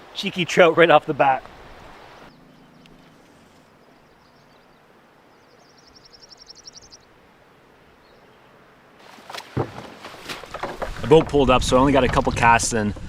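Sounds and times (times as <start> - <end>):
faint outdoor background hiss: 0.0 - 13.0
songbird trilling: 2.1 - 7.1.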